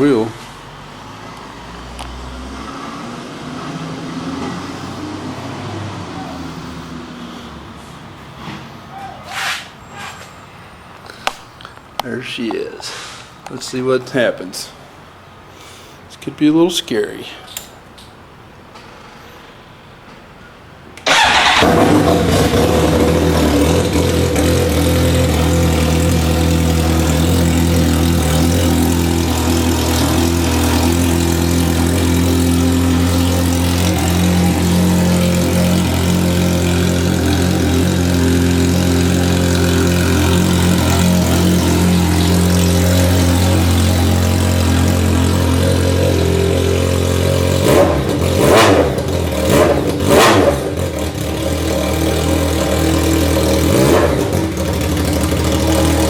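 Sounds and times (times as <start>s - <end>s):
motorcycle throttle blips: 21.0s - 56.0s
motorcycle engine idling loudly: 21.1s - 56.0s.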